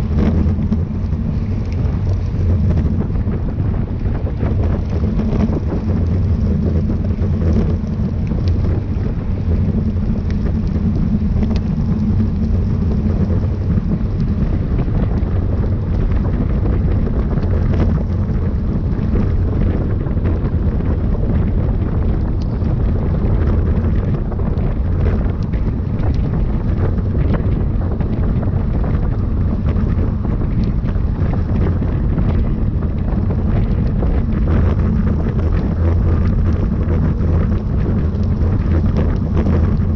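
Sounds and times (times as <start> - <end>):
wind buffeting microphone: 0.0 - 39.9
faint ticks: 9.7 - 14.5.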